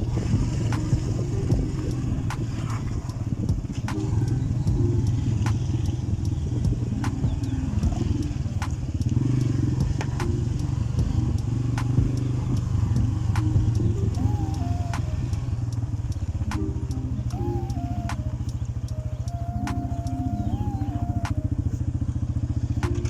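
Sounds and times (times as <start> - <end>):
motorcycle engine running: 0.0 - 23.0
sharp ticks: 0.7 - 20.2.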